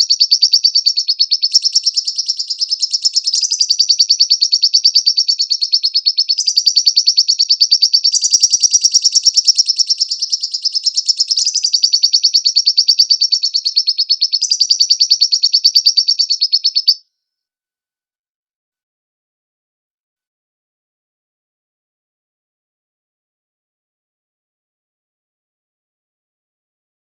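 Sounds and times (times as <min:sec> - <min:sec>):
bird trilling high chirps: 0:00.0 - 0:17.0.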